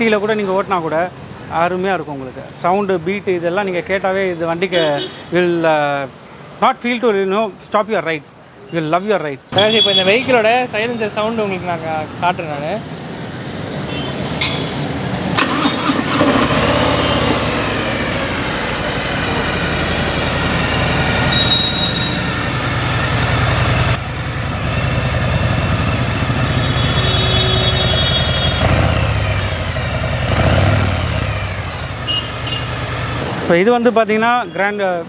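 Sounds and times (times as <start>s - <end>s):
motorcycle engine rumbling: 9.6s - 33.5s.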